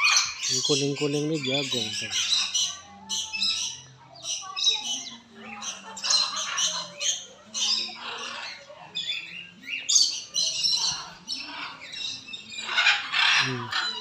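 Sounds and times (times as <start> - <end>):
birds squawking: 0.0 - 14.0.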